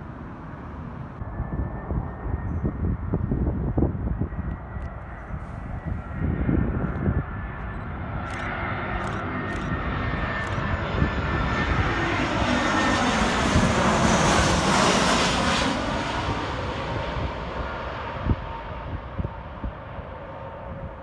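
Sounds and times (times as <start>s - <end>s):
airliner engine noise: 0.0s - 21.0s.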